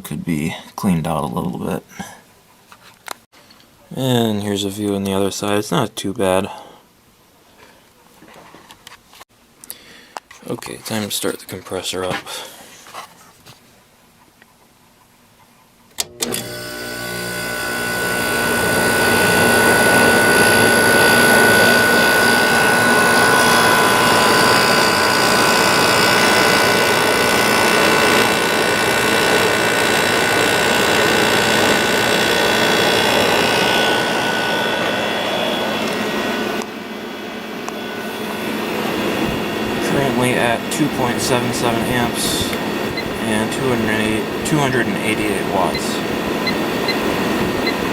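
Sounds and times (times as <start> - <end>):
air conditioner humming and whining: 16.0 - 47.9.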